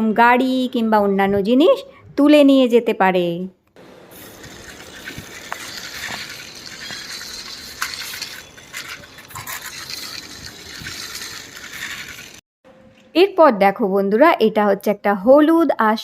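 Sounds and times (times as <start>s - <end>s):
steady hiss: 3.8s - 12.4s
plastic toy clicks and rattles: 4.2s - 12.4s.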